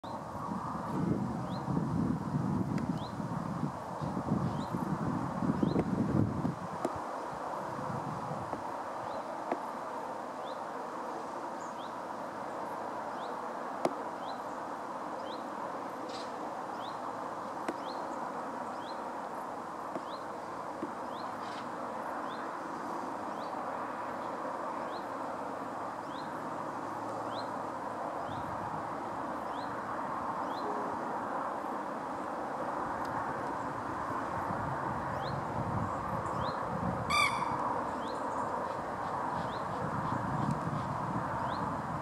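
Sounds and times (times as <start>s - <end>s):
steady rushing noise: 0.0s - 42.0s
small bird rising high call: 37.1s - 37.7s.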